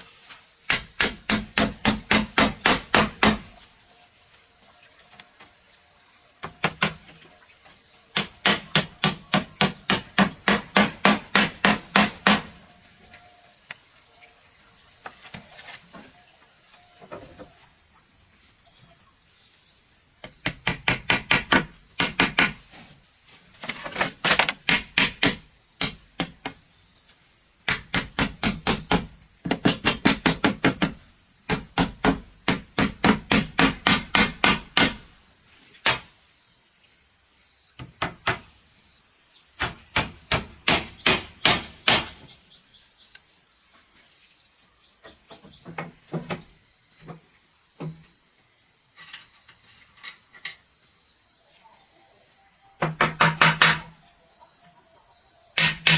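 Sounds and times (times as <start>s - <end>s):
insects buzzing: 0.0s - 55.9s
hard strikes on wood: 0.7s - 3.5s, 8.2s - 12.6s, 27.6s - 35.1s, 39.6s - 42.3s.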